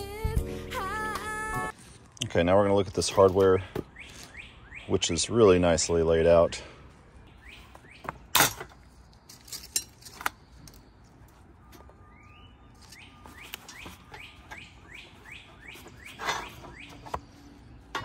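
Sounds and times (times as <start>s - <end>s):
bird chirping: 3.6s - 18.0s
metal grill hardware clinking: 8.3s - 10.4s, 16.1s - 16.9s.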